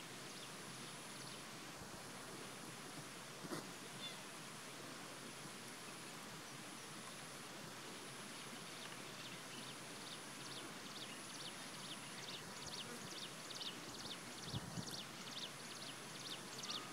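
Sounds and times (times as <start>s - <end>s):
outdoor background hiss: 0.0s - 16.9s
small birds chirping: 8.2s - 16.9s.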